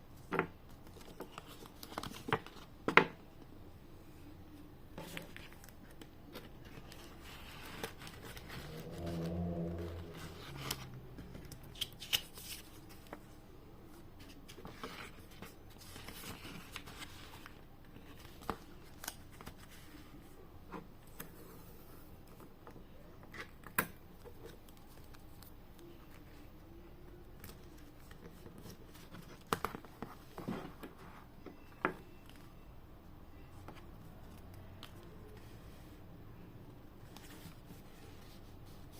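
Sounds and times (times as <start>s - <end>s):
low hum: 6.6s - 11.6s.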